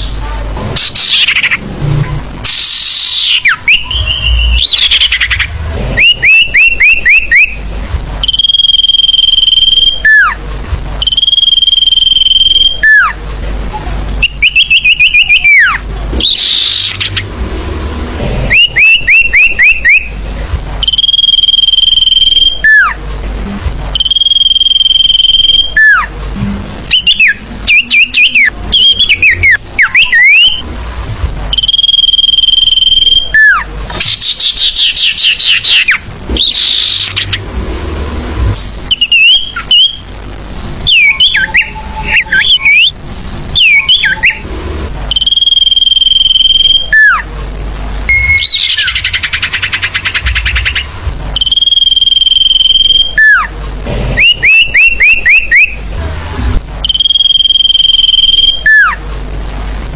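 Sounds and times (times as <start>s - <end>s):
bird chirps rising: 2.4s - 7.6s, 8.2s - 10.3s, 11.0s - 13.2s, 18.5s - 20.1s, 20.8s - 23.0s, 24.0s - 26.1s, 26.9s - 30.6s, 31.5s - 37.4s, 45.1s - 47.2s, 48.1s - 53.4s, 56.8s - 58.9s
bird high whistles: 8.2s - 10.3s, 14.2s - 17.2s, 18.5s - 20.1s, 20.8s - 22.9s, 24.0s - 26.1s, 31.5s - 37.4s, 38.9s - 40.0s, 40.9s - 43.0s, 43.6s - 44.4s, 45.1s - 47.2s, 48.1s - 50.8s, 51.4s - 53.4s, 54.2s - 55.8s, 56.8s - 58.9s.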